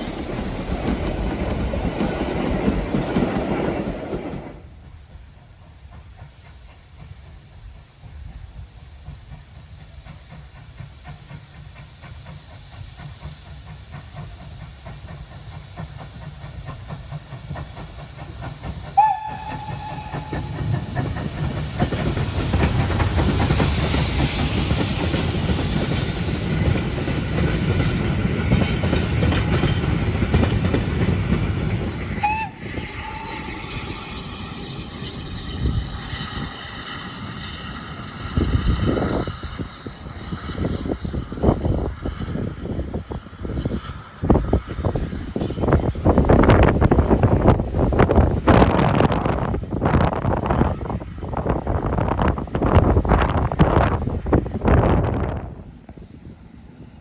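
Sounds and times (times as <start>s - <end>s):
steam hissing: 0.0s - 54.8s
steam train rumbling and rattling: 0.0s - 57.0s
steam whistle blast: 19.0s - 21.0s, 32.1s - 34.1s.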